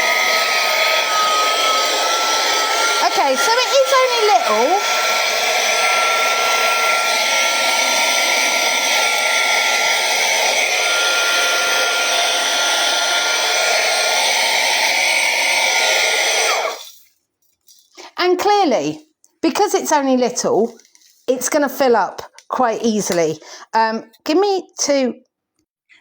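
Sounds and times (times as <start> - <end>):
handheld vacuum cleaner whining: 0.0 - 17.2.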